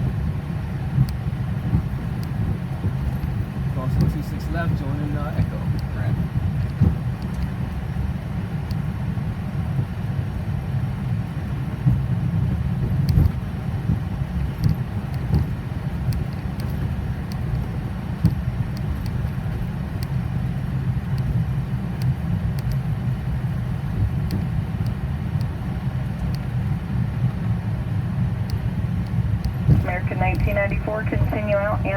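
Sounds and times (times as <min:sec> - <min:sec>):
jet engines idling: 0:00.0 - 0:31.9.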